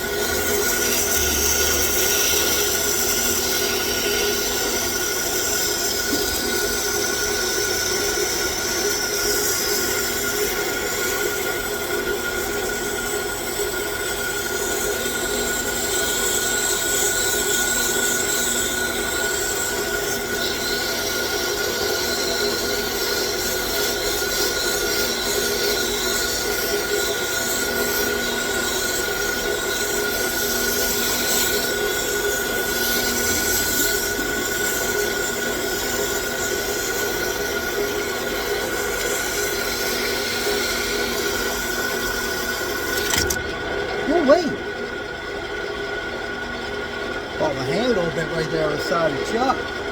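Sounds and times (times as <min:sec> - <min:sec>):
sandpaper hissing on workpiece: 0:00.0 - 0:10.0, 0:21.9 - 0:42.0
lathe gear whine: 0:00.0 - 0:49.9.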